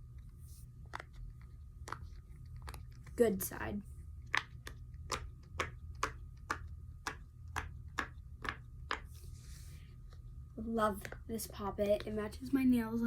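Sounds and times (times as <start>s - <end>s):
fidget toy popping: 4.2s - 9.1s.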